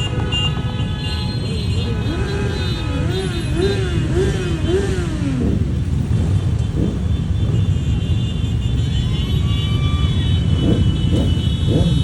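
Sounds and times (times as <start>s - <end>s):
motorcycle engines droning: 1.4s - 12.0s
motorcycle engine revs: 1.9s - 7.8s, 10.4s - 12.0s.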